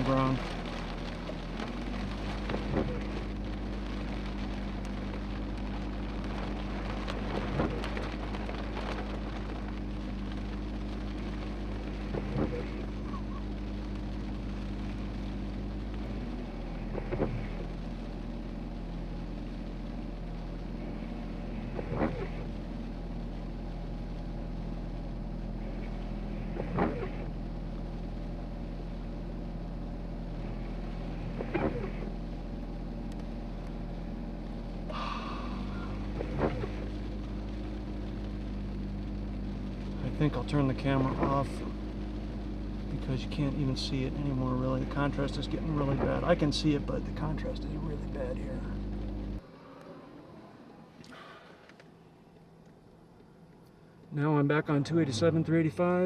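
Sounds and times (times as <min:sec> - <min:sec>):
windshield wiper swish: 0:00.0 - 0:19.8, 0:20.4 - 0:23.8, 0:25.6 - 0:28.2, 0:30.3 - 0:33.8, 0:34.4 - 0:42.3, 0:43.3 - 0:47.4
vehicle engine idling: 0:00.0 - 0:56.0.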